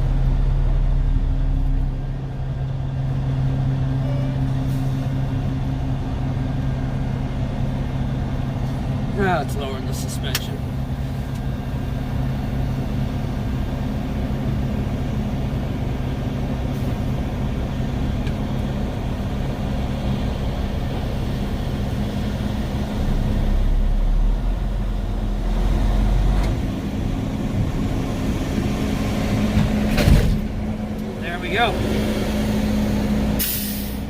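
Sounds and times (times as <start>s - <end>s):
diesel truck engine idling: 0.0s - 34.0s.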